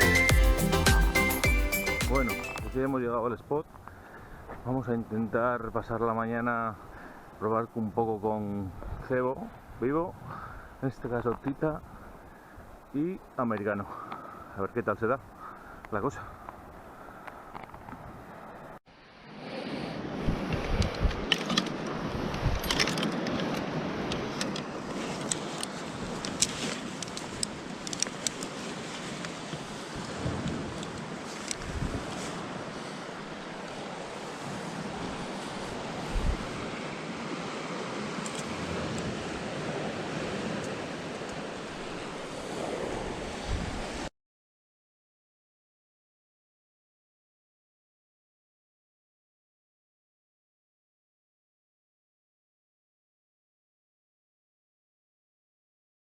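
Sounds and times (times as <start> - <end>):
sea noise: 0.0 - 3.0, 6.4 - 44.1
wind buffeting microphone: 20.0 - 44.1.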